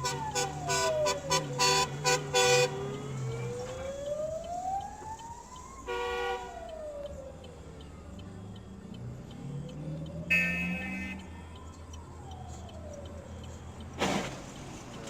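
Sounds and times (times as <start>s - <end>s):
horn blasts: 0.0s - 2.8s, 5.9s - 6.6s, 10.3s - 11.3s
emergency siren wailing: 0.0s - 15.0s.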